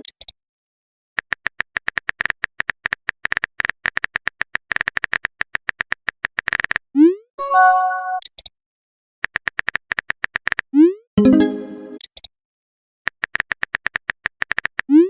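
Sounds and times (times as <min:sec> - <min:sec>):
brief chime: 0:07.4 - 0:08.2
keyboard-like typing clicks: 0:09.2 - 0:10.6, 0:13.1 - 0:14.9.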